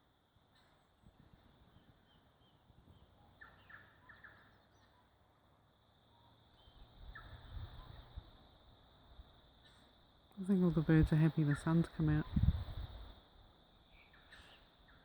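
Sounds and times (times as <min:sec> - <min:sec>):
bird chorus: 0:00.5 - 0:08.5, 0:09.6 - 0:12.5, 0:13.7 - 0:15.0
low rumble on microphone: 0:12.2 - 0:13.1.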